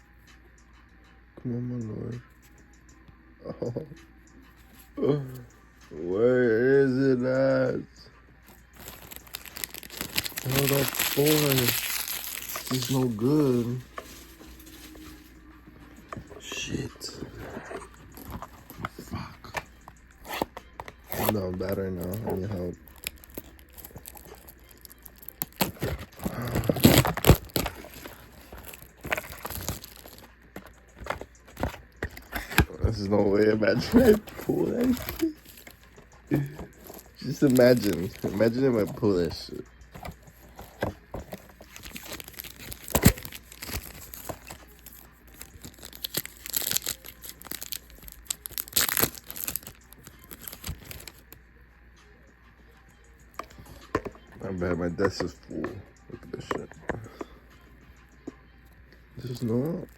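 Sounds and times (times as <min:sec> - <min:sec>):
foil wrapper crinkling: 0:08.5 - 0:15.4, 0:16.0 - 0:51.4
cards rustling and clicking: 0:08.5 - 0:51.4.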